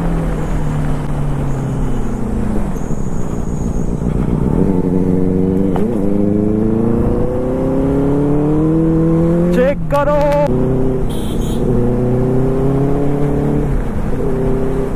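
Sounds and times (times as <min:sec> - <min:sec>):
motorbike engine accelerating: 0:00.0 - 0:14.9.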